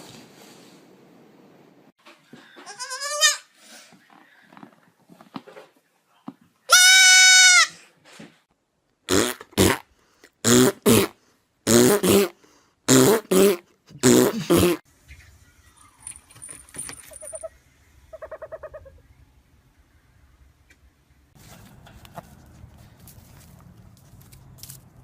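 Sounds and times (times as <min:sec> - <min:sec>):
animal high-pitched cry: 0:17.0 - 0:19.0.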